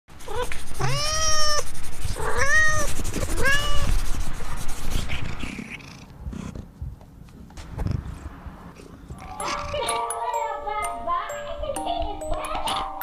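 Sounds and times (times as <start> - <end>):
cat meowing: 0.2 - 4.0.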